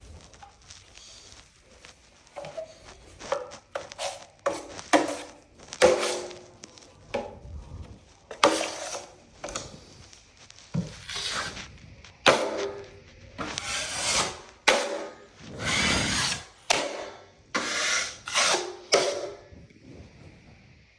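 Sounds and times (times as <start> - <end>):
tool scraping drywall: 2.4 - 6.5, 8.3 - 9.8, 10.8 - 19.5.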